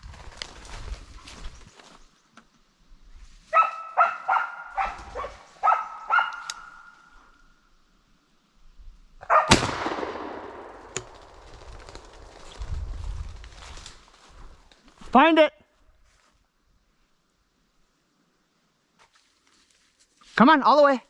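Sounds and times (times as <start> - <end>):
dog barking: 3.5 - 6.9, 9.2 - 9.5
gunshot cracking and echoing: 9.4 - 11.5.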